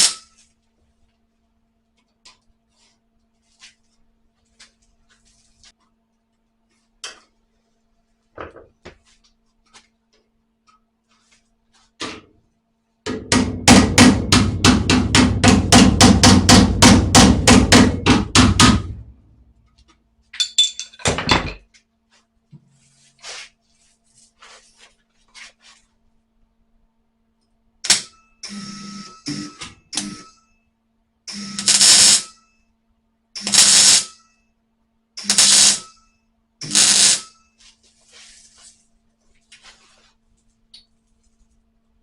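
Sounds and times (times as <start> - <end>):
hammer blows on sheet steel: 13.1 - 19.0.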